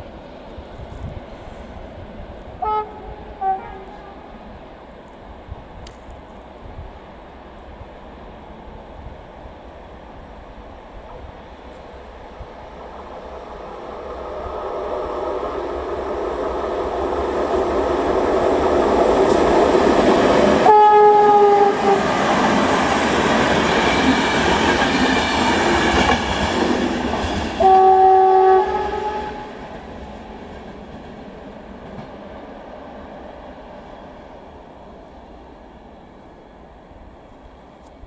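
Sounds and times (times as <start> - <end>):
passing train rail noise: 0.0 - 38.0
train horn blasts: 2.5 - 4.6, 20.6 - 22.2, 27.6 - 29.6.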